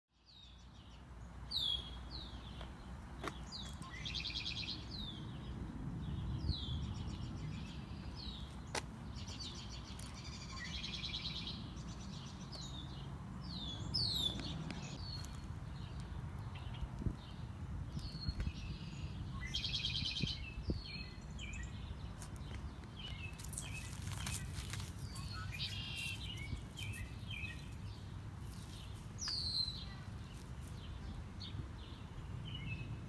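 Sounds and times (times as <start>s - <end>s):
songbirds chirping: 0.1s - 33.0s
bird trill: 25.0s - 27.8s.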